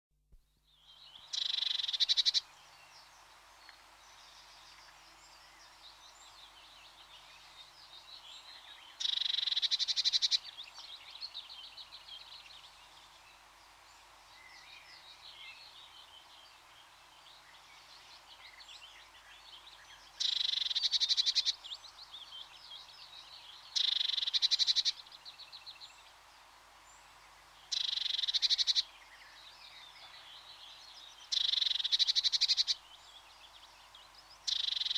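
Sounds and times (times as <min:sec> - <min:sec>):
faint bird chirps: 0:00.7 - 0:13.0, 0:17.2 - 0:26.1, 0:27.7 - 0:34.9
small songbirds trilling: 0:00.8 - 0:34.9.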